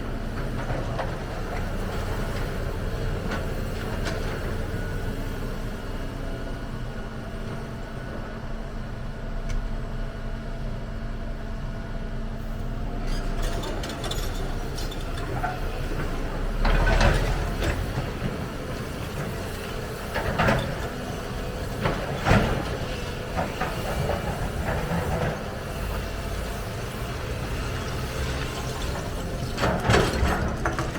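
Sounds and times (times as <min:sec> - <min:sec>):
excavator diesel engine running: 0:00.0 - 0:30.9.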